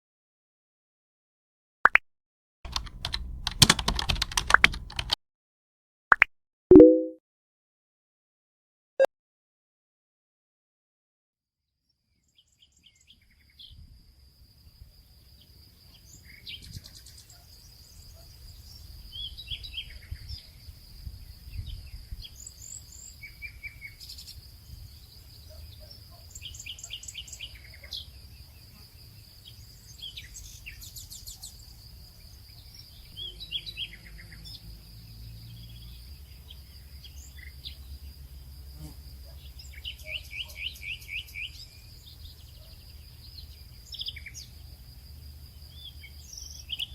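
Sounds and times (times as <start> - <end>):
high insect drone: 34.6 - 39.7.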